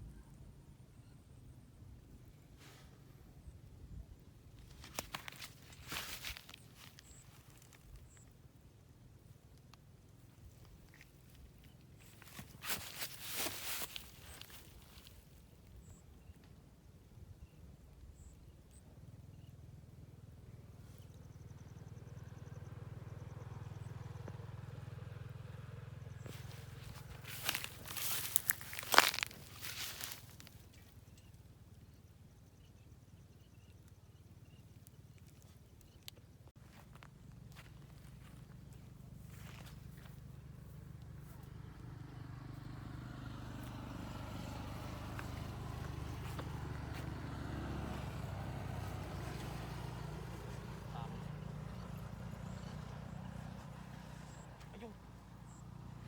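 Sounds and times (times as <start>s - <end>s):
motor engine running: 19.1s - 36.0s, 36.6s - 56.0s.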